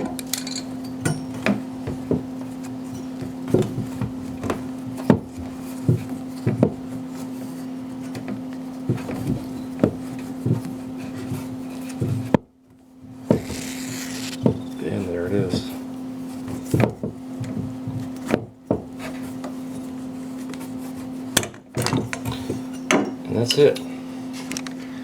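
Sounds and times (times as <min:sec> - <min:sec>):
tubing cutter on copper pipe: 0:13.3 - 0:14.7.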